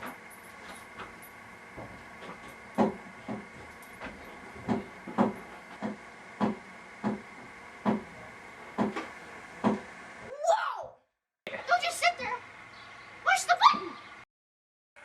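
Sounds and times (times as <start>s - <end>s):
dull knocks: 1.8s - 8.1s, 8.8s - 9.9s.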